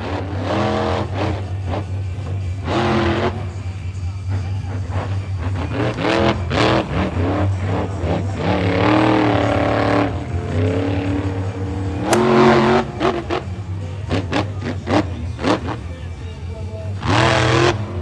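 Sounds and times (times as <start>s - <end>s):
monster truck engines revving: 0.0s - 18.0s
sharp crack: 10.4s - 13.2s.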